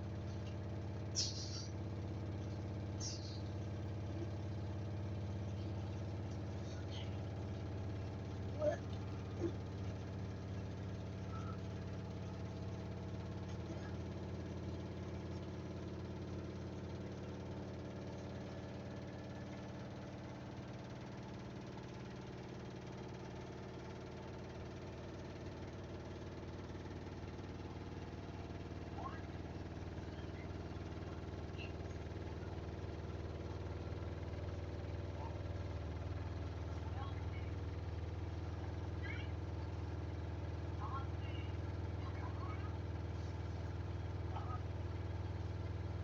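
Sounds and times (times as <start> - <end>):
washing machine spinning: 0.0 - 46.0.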